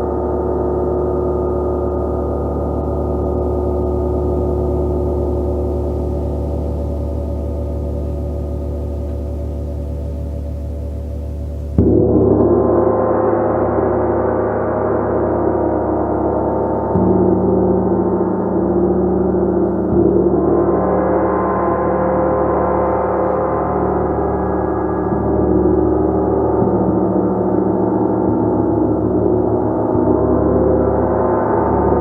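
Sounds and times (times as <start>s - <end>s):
gong being struck: 2.8s - 18.6s.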